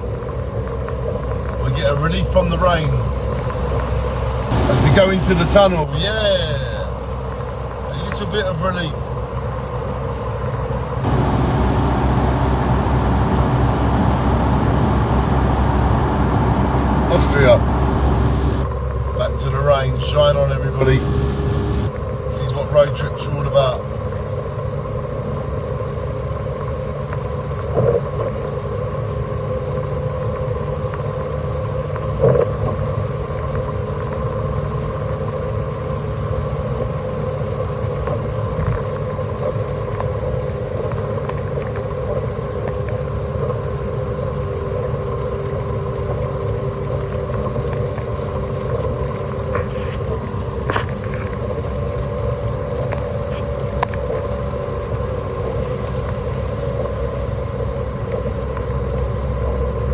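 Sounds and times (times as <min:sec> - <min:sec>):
faint steady hum: 0:00.0 - 0:59.9
road and tyre noise in car: 0:00.0 - 0:59.9.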